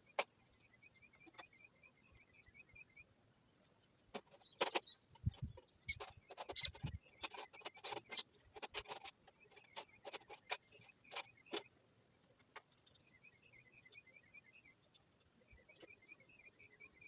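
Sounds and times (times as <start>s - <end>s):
faint chirping: 0.0s - 17.0s
hand tools clinking and rattling: 4.5s - 11.7s.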